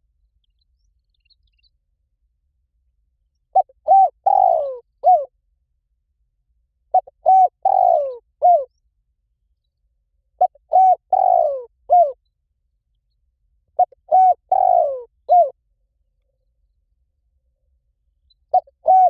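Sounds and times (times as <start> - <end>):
dove cooing: 3.5 - 5.3, 6.9 - 8.7, 10.4 - 12.2, 13.8 - 15.6, 18.5 - 19.0.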